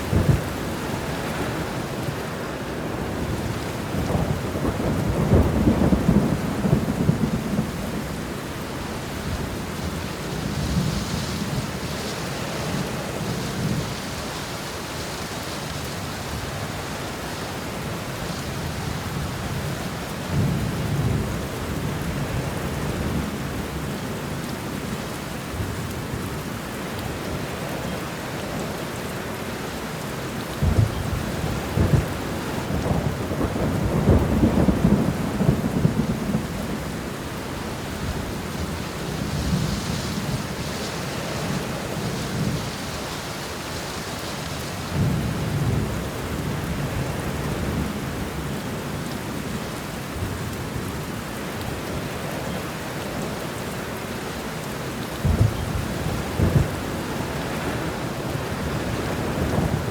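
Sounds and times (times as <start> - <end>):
heavy rain: 0.0 - 59.9
rolling thunder: 2.9 - 8.1, 30.6 - 43.6, 55.2 - 59.9.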